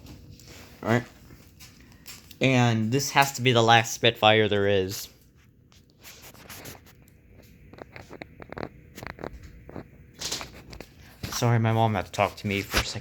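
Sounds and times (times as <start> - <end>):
handling scratches and clicks: 5.7 - 11.4.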